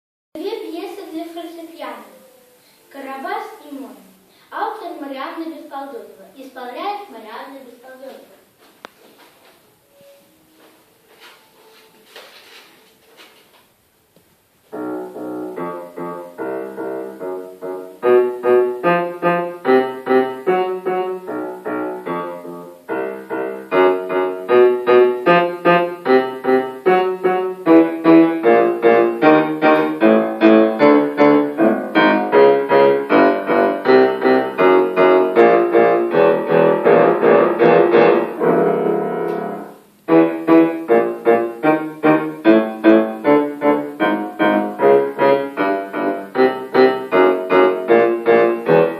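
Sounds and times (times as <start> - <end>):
solo piano piece: 14.6 - 48.9.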